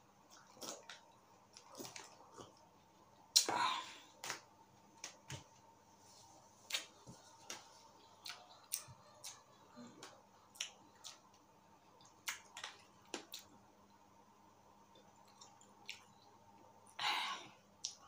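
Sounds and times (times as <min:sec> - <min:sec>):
faint chewing: 0:00.2 - 0:03.5, 0:06.7 - 0:13.6, 0:14.8 - 0:16.6
mouth clicks and lip smacks: 0:10.0 - 0:11.4, 0:12.0 - 0:13.6.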